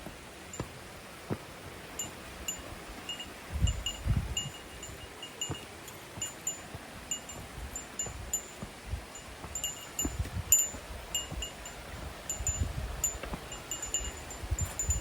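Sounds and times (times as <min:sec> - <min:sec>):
wind rumble on microphone: 0:02.2 - 0:05.6, 0:06.7 - 0:15.0.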